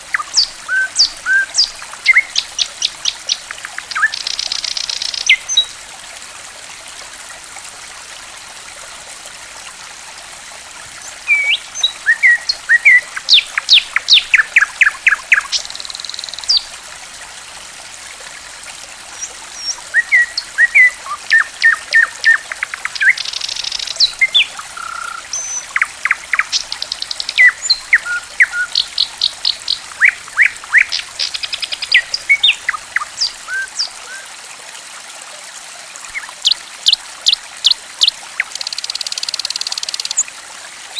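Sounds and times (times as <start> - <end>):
water trickling: 0.0 - 40.9
songbird chirping and trilling: 0.1 - 5.7, 11.3 - 16.6, 19.6 - 34.2.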